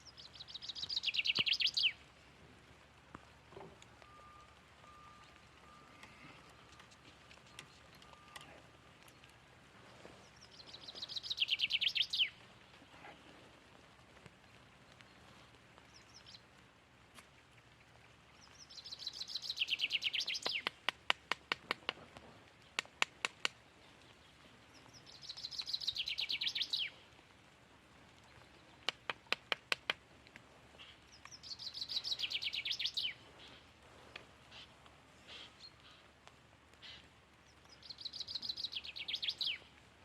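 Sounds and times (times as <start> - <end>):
songbird trilling: 0.0 - 2.0, 10.4 - 12.4, 18.4 - 20.7, 24.8 - 26.9, 30.8 - 33.6, 37.7 - 39.7
sharp evenly spaced clicks: 20.2 - 22.0, 28.8 - 30.4.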